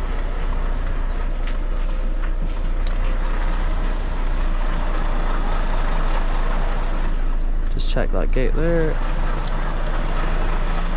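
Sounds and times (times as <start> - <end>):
truck diesel engine running: 0.0 - 10.9.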